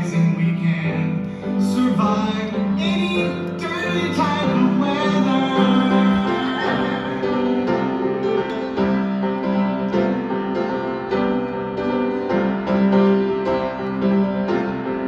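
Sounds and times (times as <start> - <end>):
piano playing held chords: 0.0 - 15.0.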